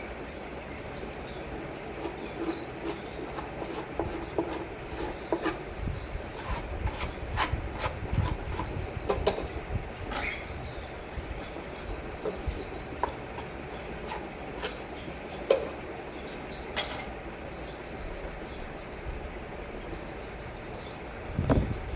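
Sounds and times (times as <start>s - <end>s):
faint high bird chirps: 7.8s - 10.9s, 16.2s - 21.0s.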